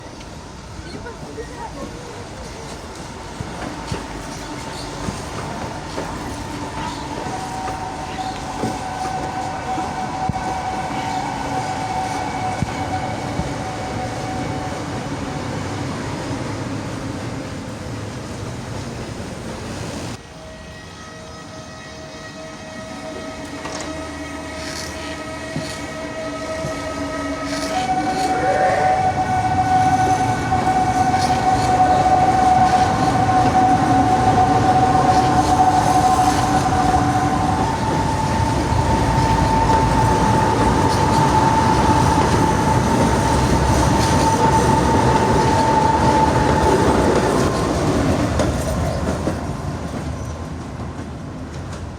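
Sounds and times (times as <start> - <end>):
train rumble: 0.0 - 51.9
rail clatter: 23.4 - 51.9.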